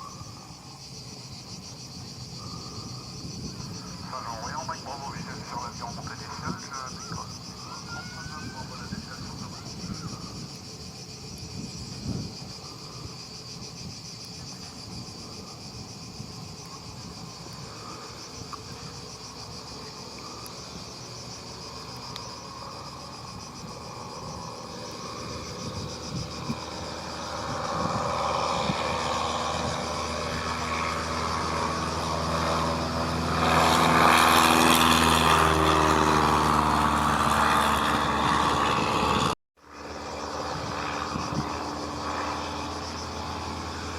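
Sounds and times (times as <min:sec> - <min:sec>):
crickets chirring: 0:00.0 - 0:43.9
light aircraft engine: 0:00.0 - 0:43.9.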